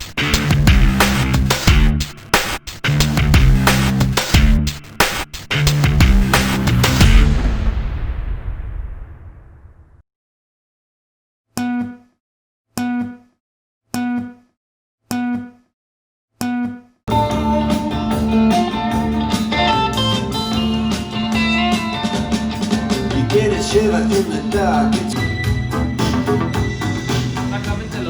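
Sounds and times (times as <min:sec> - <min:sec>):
guitar and drums: 0:00.0 - 0:07.7, 0:17.1 - 0:28.0
plucked string notes: 0:17.1 - 0:28.0.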